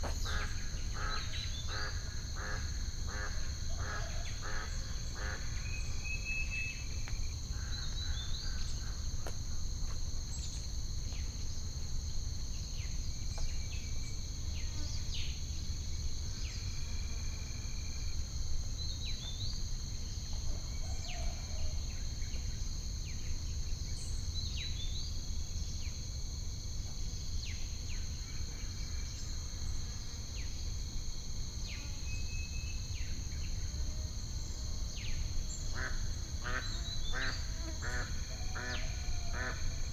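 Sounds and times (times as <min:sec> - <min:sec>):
insect chorus trilling: 0:00.0 - 0:26.4, 0:27.1 - 0:39.9.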